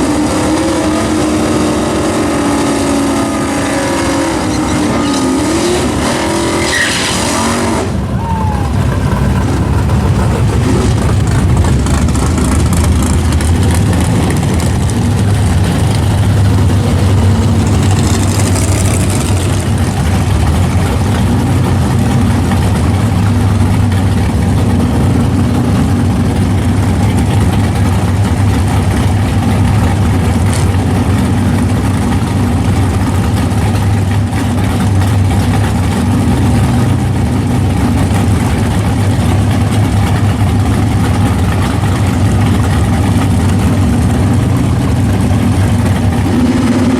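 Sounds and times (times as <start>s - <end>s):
car engine idling: 7.8s - 46.9s.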